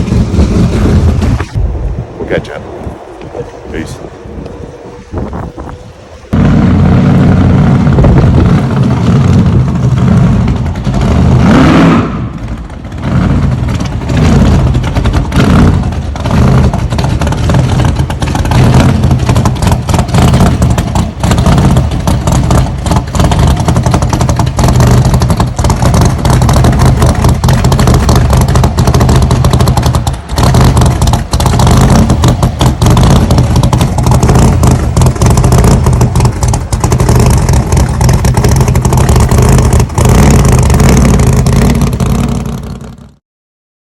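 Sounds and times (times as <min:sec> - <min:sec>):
vehicle engine running: 0:00.0 - 0:43.2
rattling: 0:12.3 - 0:42.7.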